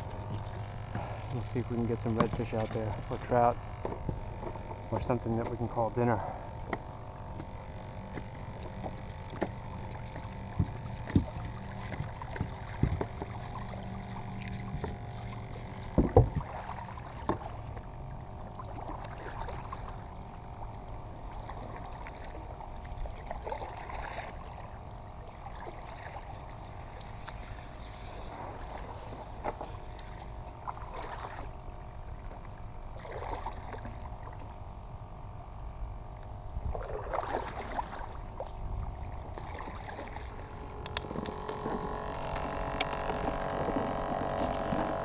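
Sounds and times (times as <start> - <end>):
boat motor hum: 0.0 - 45.0
knocks on boat hull: 10.6 - 13.3, 15.9 - 16.5.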